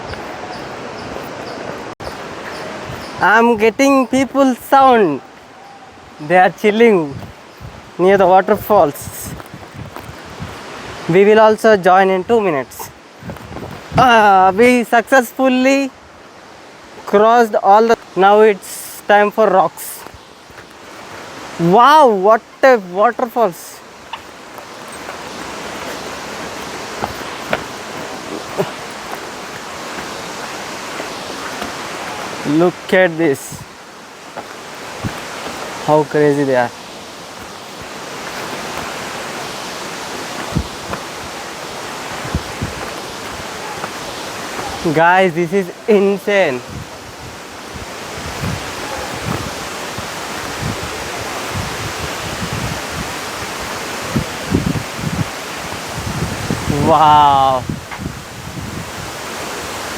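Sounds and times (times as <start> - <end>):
wind buffeting microphone: 0.0 - 6.3, 6.9 - 11.2, 12.2 - 14.8, 23.9 - 45.0, 46.5 - 59.9
waterfall crashing down: 17.7 - 57.7.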